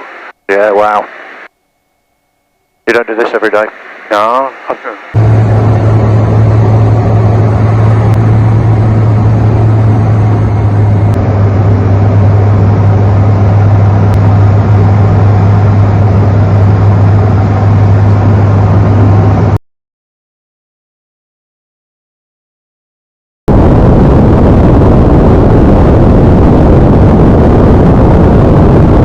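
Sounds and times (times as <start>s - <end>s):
aircraft engine and propeller drone: 4.8s - 19.6s, 23.5s - 29.0s.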